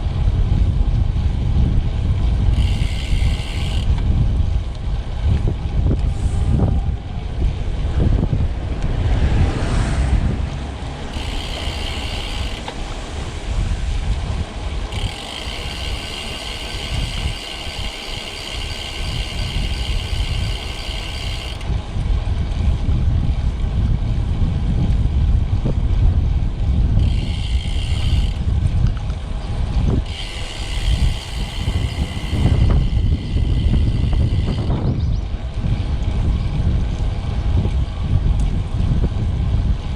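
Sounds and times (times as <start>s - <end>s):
bike rolling on road: 0.0s - 39.9s
wind buffeting microphone: 0.0s - 39.9s
high steady buzz: 2.5s - 4.2s, 5.8s - 21.7s, 29.8s - 34.8s.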